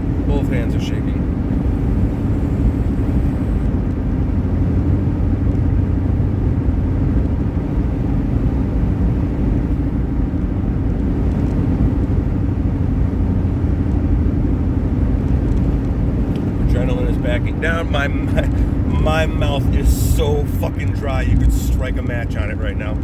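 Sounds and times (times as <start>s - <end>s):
car engine rumble: 0.0s - 23.0s
road noise: 0.0s - 23.0s.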